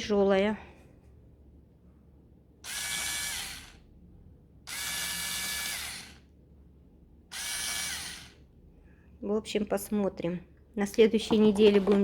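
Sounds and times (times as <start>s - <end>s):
electric brush motor whine: 2.7s - 3.8s, 4.7s - 6.2s, 7.3s - 8.4s.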